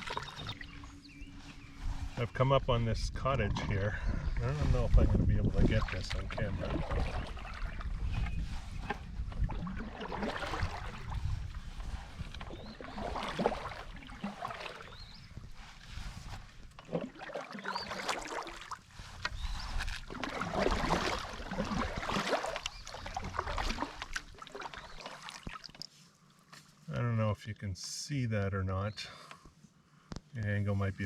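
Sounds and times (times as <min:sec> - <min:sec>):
paddle strokes and water splashing: 0:00.0 - 0:02.5, 0:04.4 - 0:26.9
wind rumbling on microphone: 0:00.0 - 0:17.0, 0:17.7 - 0:24.3.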